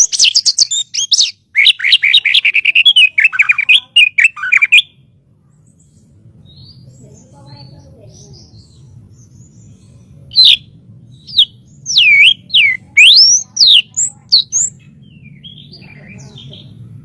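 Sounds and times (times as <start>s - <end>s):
bird singing whistles: 11.3s - 14.7s.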